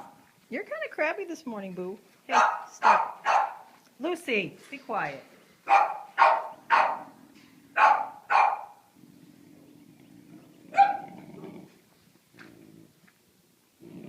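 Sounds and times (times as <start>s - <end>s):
low steady noise: 0.0s - 14.0s
dog barking: 2.3s - 3.7s, 5.7s - 7.2s, 7.8s - 8.8s, 10.7s - 11.1s.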